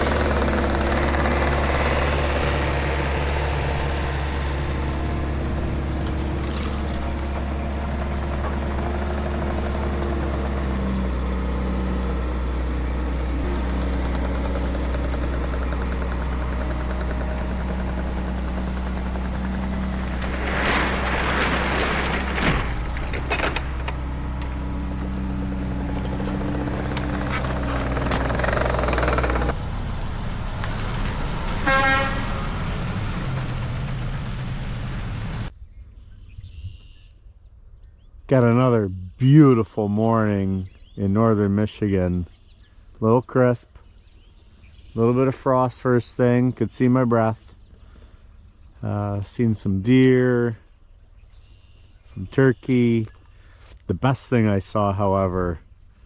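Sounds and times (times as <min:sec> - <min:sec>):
diesel engine running: 0:00.0 - 0:35.5
loud noisy rush: 0:20.0 - 0:23.3.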